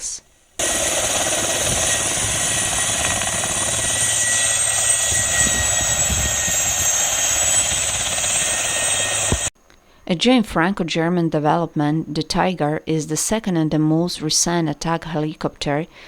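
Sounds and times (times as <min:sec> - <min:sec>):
high turbine whine: 0:00.0 - 0:09.5
helicopter rotor and engine: 0:00.6 - 0:09.5.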